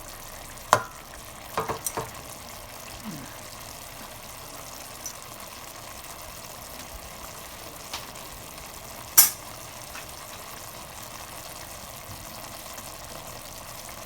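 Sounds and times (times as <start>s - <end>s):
food sizzling in a pot: 0.0s - 14.0s
sharp click: 9.2s - 9.4s.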